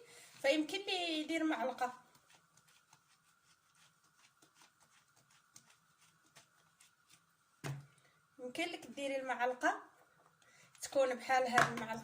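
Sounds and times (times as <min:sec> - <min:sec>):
faint steady hum: 0:00.0 - 0:12.0
knife scraping eggplant: 0:01.4 - 0:07.4.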